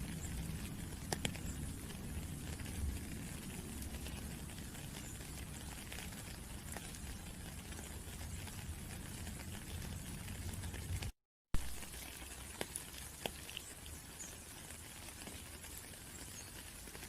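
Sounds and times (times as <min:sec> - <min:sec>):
rain pattering: 0:00.0 - 0:17.0.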